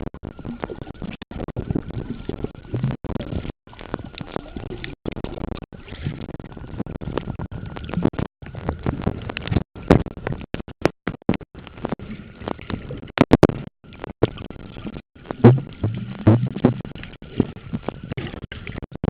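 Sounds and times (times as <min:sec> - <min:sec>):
muffled water sloshing: 0:11.6 - 0:18.8.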